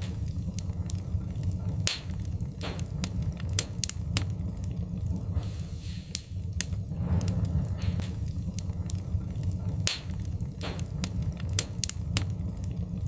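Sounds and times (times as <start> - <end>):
low rumble: 0.0 - 13.0
wood fire crackling: 0.0 - 13.0
short hisses: 5.4 - 6.2.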